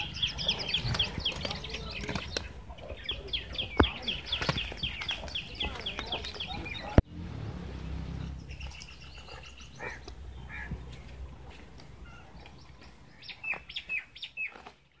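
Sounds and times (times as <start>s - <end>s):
small birds chirping: 0.0s - 15.0s
low rumble: 6.8s - 12.7s.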